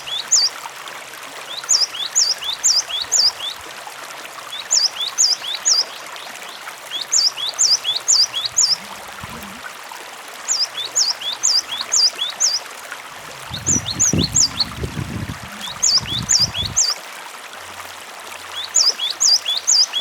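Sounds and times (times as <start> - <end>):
running water: 0.0 - 20.0.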